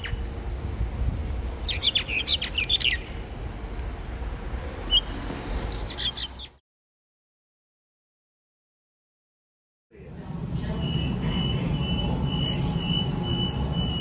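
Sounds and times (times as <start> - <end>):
birds chirping: 0.0 - 0.3, 1.6 - 3.2, 4.9 - 6.6
steady low rumble: 0.0 - 5.9, 9.9 - 14.0.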